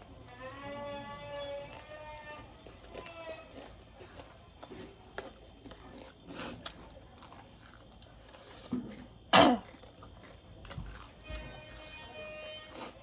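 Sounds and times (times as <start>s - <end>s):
chewing and mouth noises: 0.0s - 11.7s
person coughing: 9.3s - 9.7s.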